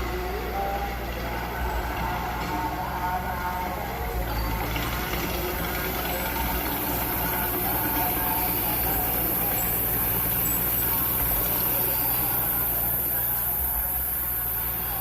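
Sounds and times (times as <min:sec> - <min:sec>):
heavy diesel machinery engine: 0:00.0 - 0:15.0
steady high hiss: 0:05.3 - 0:15.0.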